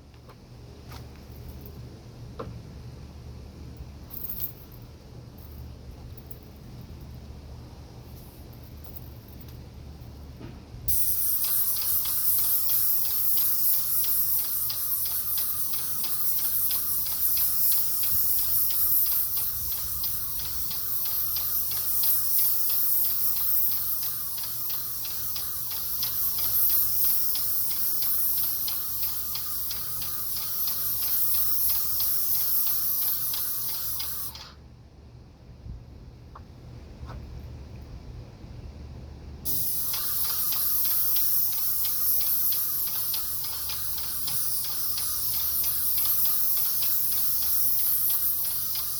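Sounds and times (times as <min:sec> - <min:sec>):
paint sprayer hissing and ticking: 0:10.9 - 0:34.6, 0:39.4 - 0:48.9.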